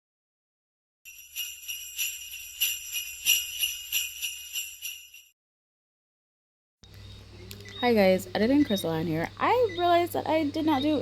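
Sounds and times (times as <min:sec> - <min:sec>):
jingle bells shaken: 0:01.1 - 0:05.3.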